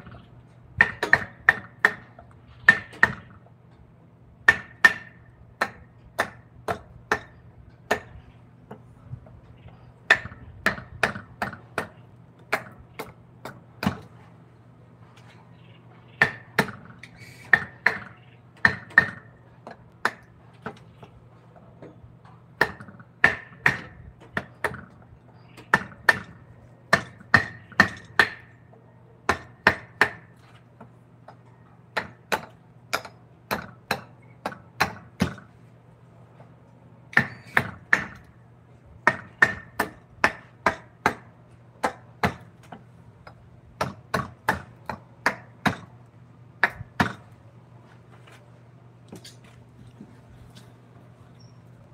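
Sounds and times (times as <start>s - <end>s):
mallet striking chisel into wood: 0.8s - 2.1s, 4.5s - 8.1s.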